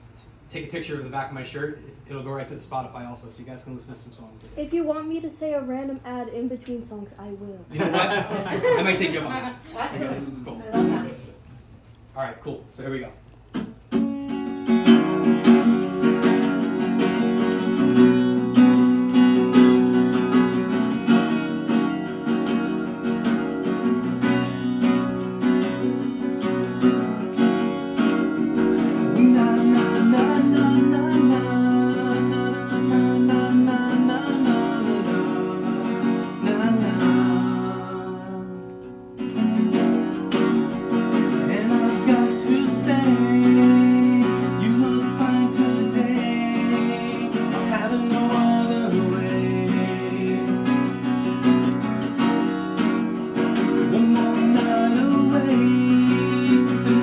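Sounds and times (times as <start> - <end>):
acoustic guitar strumming chords: 7.8 - 11.4, 13.5 - 57.0.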